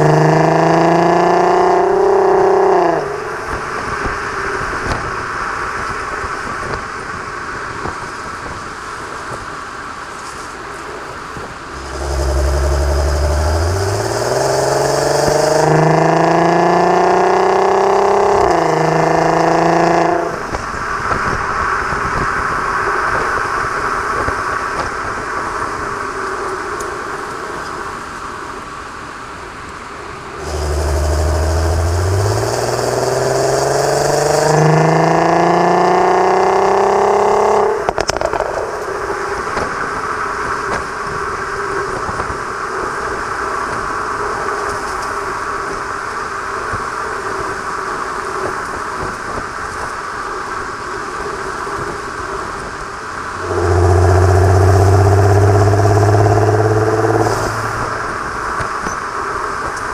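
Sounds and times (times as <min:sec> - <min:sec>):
car engine accelerating hard: 0:00.0 - 0:06.8, 0:11.0 - 0:25.7, 0:30.3 - 0:42.7, 0:51.6 - 0:59.9
road and tyre noise: 0:00.0 - 0:59.9.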